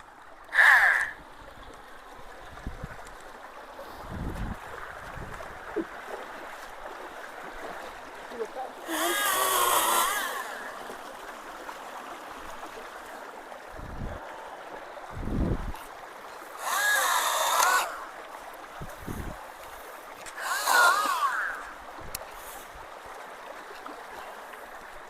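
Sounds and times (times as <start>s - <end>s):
water flowing: 0.0s - 25.0s
chainsaw cutting: 8.9s - 10.8s, 16.6s - 18.0s, 20.3s - 21.8s.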